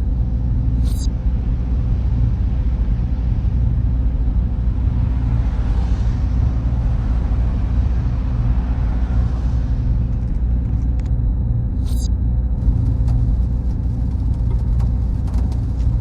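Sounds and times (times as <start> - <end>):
cooling fans humming: 11.3 - 16.0.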